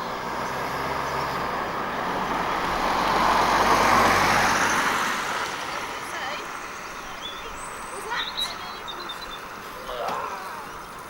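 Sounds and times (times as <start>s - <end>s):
vehicle passing by: 0.0s - 10.9s.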